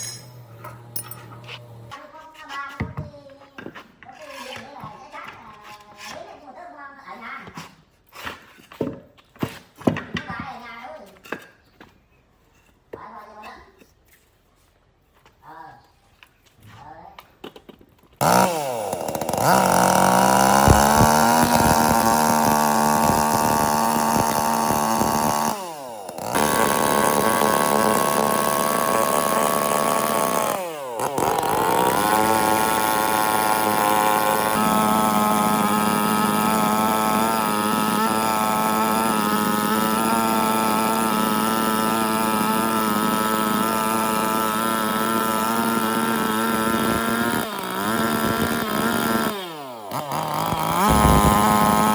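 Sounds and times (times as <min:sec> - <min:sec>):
chainsaw revving: 0:00.0 - 0:02.0, 0:18.2 - 0:51.9.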